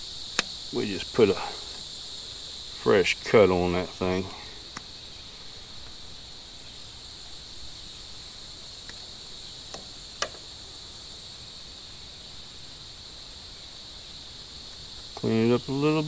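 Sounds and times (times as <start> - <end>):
insects droning: 0.0 - 16.0
sharp click: 0.3 - 0.6.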